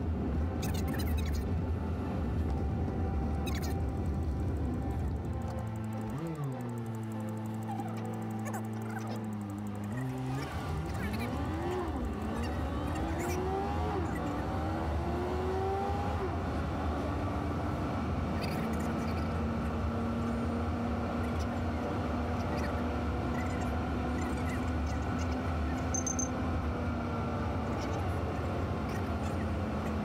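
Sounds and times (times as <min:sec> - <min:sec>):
car engine accelerating: 0:00.0 - 0:30.0
road noise: 0:00.0 - 0:30.0.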